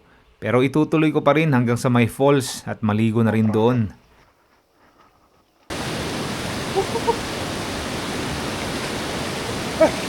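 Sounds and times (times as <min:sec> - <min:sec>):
waterfall rushing: 0:05.7 - 0:10.0
faint short calls: 0:06.6 - 0:07.3.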